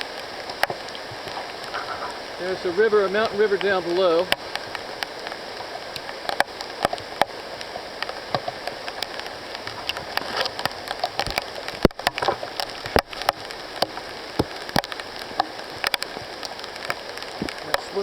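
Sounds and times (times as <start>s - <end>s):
mountain stream rushing: 0.0s - 18.0s
sharp ticks and taps: 3.6s - 18.0s.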